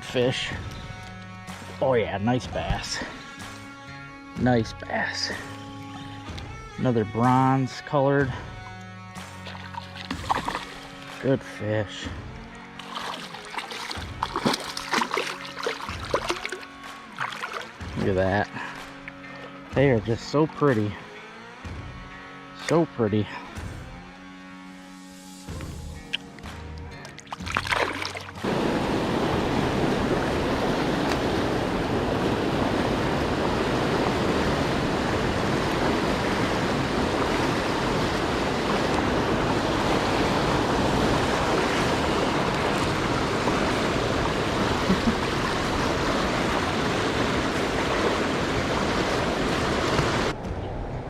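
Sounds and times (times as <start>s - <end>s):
creek water flowing: 8.3s - 11.6s, 12.6s - 19.7s, 25.5s - 50.4s.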